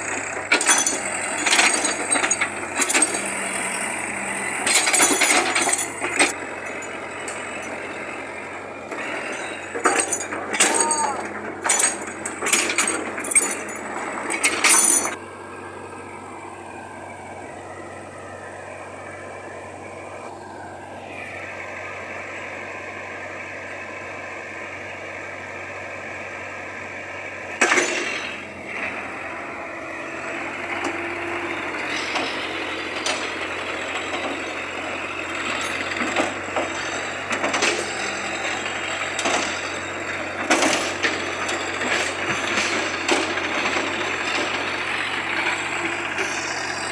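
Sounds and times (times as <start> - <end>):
diesel engine running: 0.0 - 46.9
metal clanks and knocks: 4.6 - 7.8, 9.0 - 15.2, 27.6 - 28.4, 35.5 - 44.8.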